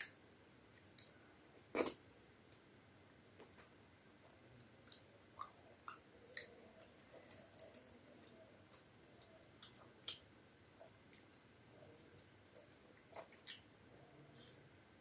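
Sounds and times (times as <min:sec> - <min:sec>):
wet chewing: 0:04.8 - 0:11.3.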